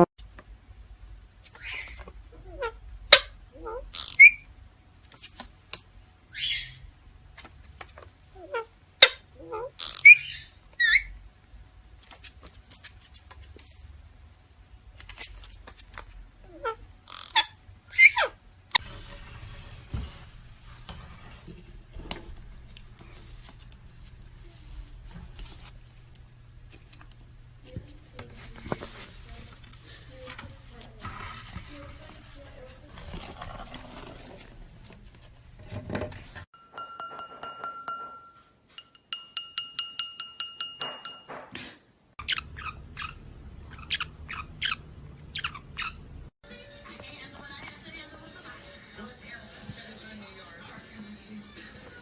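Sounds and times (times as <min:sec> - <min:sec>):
parrot chirping and squawking: 0:01.5 - 0:04.5, 0:06.3 - 0:06.9, 0:08.4 - 0:11.2, 0:16.5 - 0:20.0, 0:42.2 - 0:46.3.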